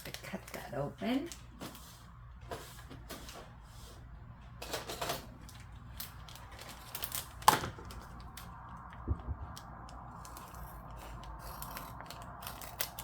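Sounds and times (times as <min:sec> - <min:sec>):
plastic packaging clicks and rustles: 0:00.0 - 0:01.8, 0:04.6 - 0:13.0.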